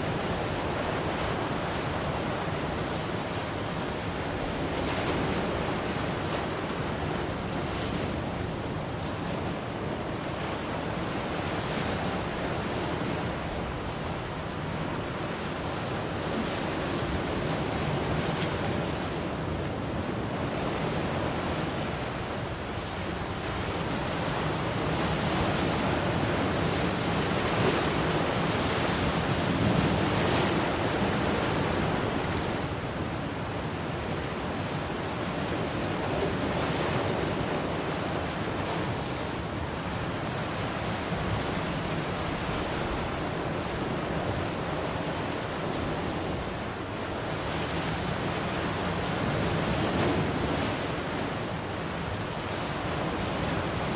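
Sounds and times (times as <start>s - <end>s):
wind: 0.0s - 53.9s.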